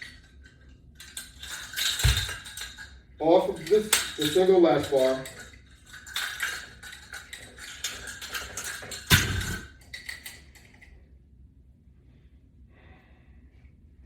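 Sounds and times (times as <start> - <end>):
hardware clinking and rattling: 0.0 - 10.9.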